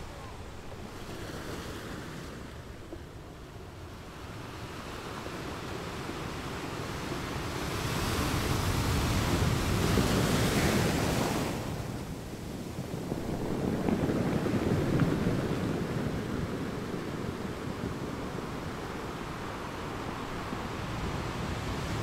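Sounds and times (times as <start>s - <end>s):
choppy sea water: 0.0s - 22.0s
wind on microphone: 0.0s - 22.0s.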